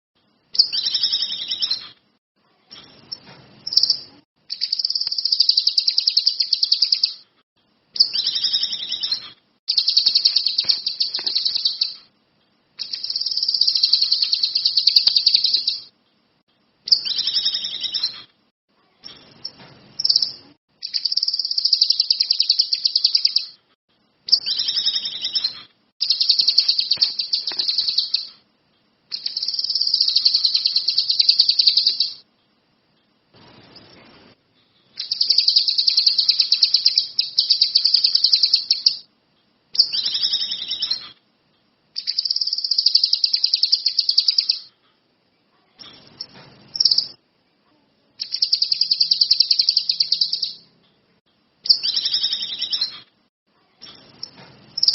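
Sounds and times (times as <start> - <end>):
songbird trilling: 0.6 - 2.0, 3.0 - 7.2, 8.0 - 12.0, 12.8 - 15.9, 16.9 - 18.2, 20.0 - 23.6, 24.3 - 28.4, 29.1 - 32.2, 35.0 - 39.0, 39.8 - 41.1, 42.0 - 44.7, 48.2 - 50.6, 51.7 - 53.0.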